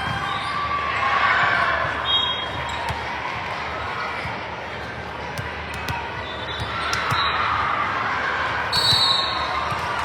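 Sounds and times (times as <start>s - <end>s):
murmur of voices: 0.0s - 10.0s
volleyballs hit and bouncing: 2.6s - 8.0s, 8.8s - 10.0s.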